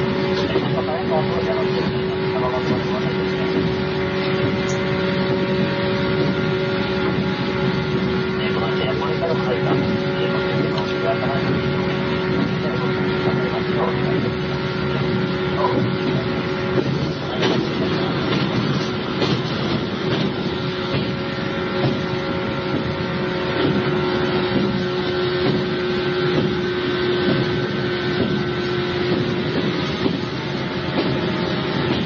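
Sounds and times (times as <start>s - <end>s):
constant hum: 0.0s - 32.0s
wheels rumbling on rail: 0.0s - 32.0s
clacks: 15.6s - 32.0s.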